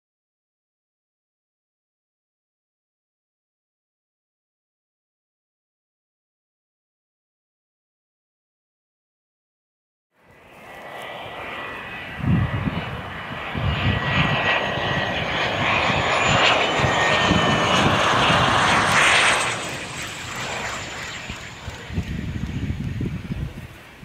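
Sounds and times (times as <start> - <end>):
jet engines roaring and whining: 10.3 - 24.0.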